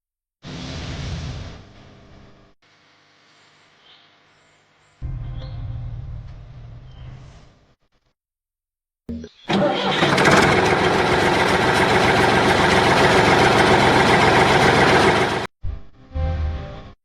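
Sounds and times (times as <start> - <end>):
engine starting and running: 9.4 - 15.5.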